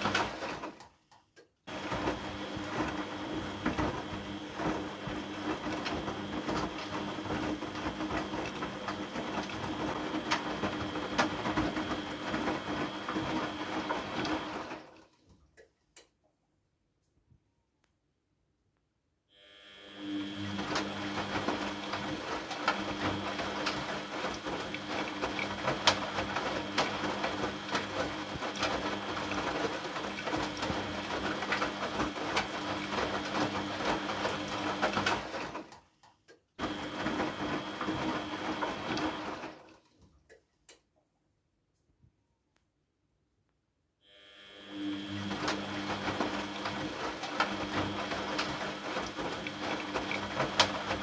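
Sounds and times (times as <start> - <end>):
electric motor humming: 19.3 - 22.0, 44.0 - 46.8.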